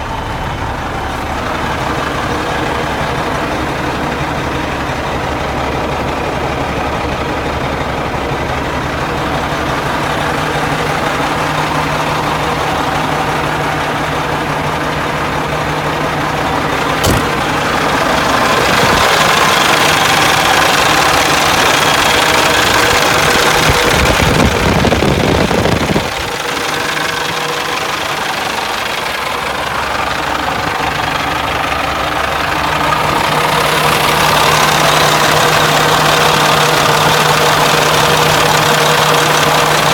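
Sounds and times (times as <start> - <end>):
diesel truck engine idling: 0.0 - 39.9
sharp click: 17.0 - 17.4.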